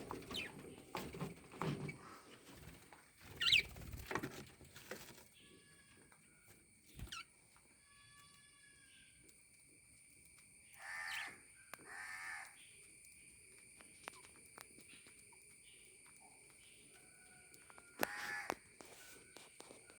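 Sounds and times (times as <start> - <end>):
harsh bird calls: 3.3 - 3.8, 10.8 - 12.7.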